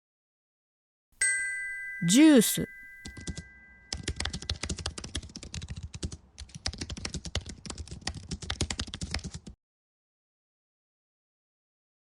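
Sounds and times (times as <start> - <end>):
computer keyboard typing: 3.0 - 9.6.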